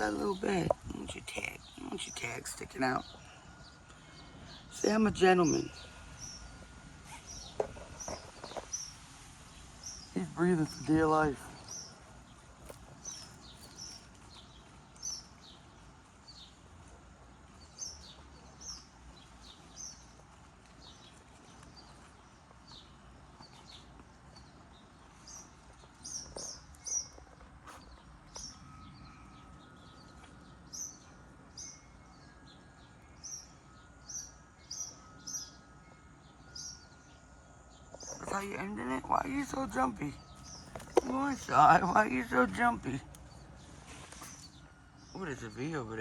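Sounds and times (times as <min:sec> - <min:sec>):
birds chirping: 0:00.0 - 0:46.0.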